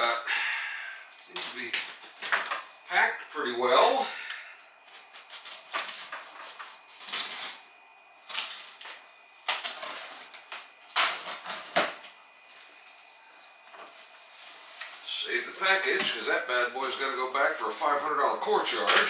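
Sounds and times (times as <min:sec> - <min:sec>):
packing material rustling: 0:01.1 - 0:02.9, 0:04.8 - 0:18.0.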